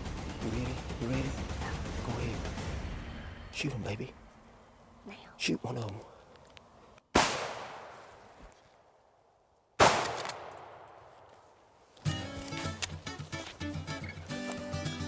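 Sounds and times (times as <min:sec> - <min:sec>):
music: 0:00.0 - 0:02.7, 0:12.0 - 0:15.0
shotgun blasts with echo: 0:00.0 - 0:03.6, 0:07.1 - 0:08.1, 0:09.8 - 0:11.0.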